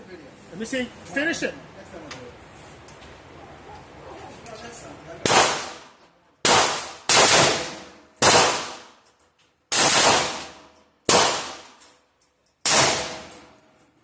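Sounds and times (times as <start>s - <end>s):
handgun shots with echo: 6.4s - 8.9s, 9.7s - 11.7s, 12.6s - 13.4s.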